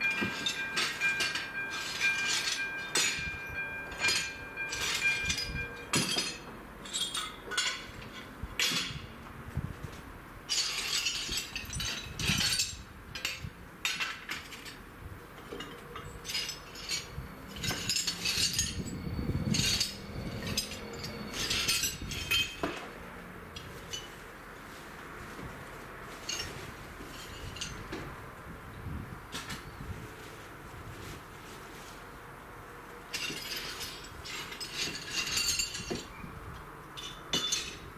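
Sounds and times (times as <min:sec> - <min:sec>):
steady warning tones: 0:00.0 - 0:06.6, 0:15.8 - 0:23.5.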